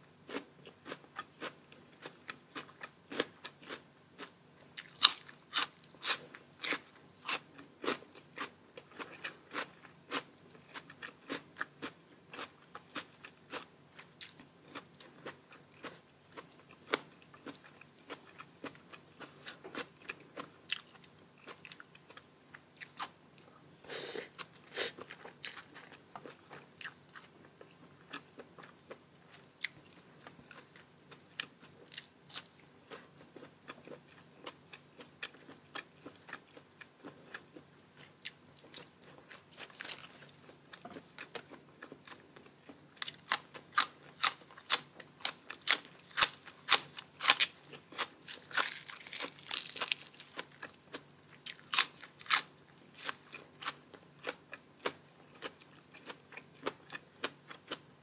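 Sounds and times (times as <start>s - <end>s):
person chewing crisp food: 0.3s - 57.9s.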